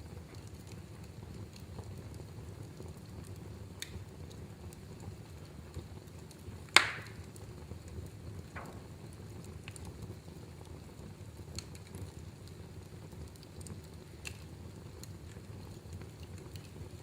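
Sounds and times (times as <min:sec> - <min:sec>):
fire crackles: 0:00.0 - 0:17.0
fire rumbling in fireplace: 0:00.0 - 0:17.0
loud sharp pop of fire: 0:06.7 - 0:07.3, 0:08.5 - 0:09.0.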